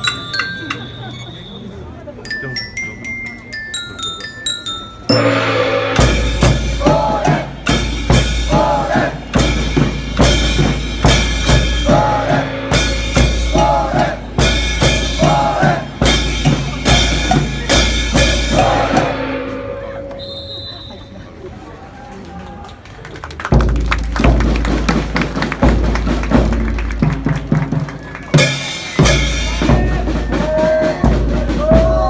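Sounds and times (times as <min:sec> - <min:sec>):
bass drum and snare drum march: 0:05.2 - 0:19.7, 0:23.5 - 0:32.0.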